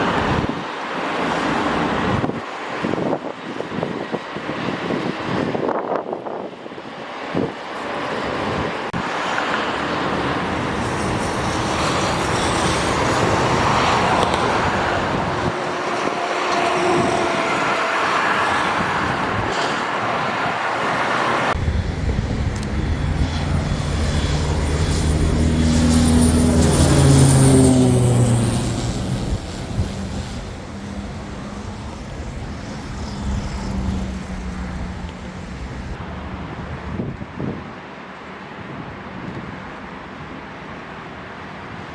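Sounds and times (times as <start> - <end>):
propeller plane engine drone: 6.5 - 16.6, 17.5 - 37.0.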